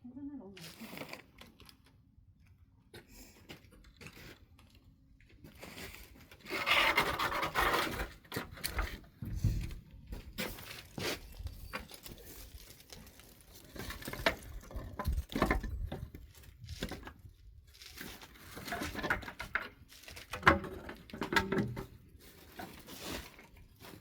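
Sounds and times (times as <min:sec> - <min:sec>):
rustling scrape: 0:05.5 - 0:20.3, 0:21.8 - 0:24.0.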